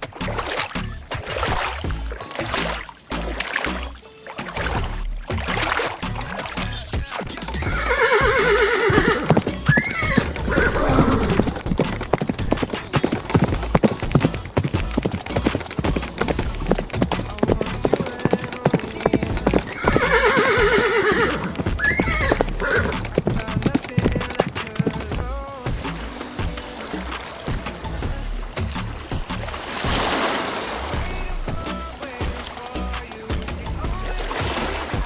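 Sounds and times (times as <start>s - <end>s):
hooves clip-clopping: 0.0s - 35.0s
horse whinnying: 7.6s - 24.5s.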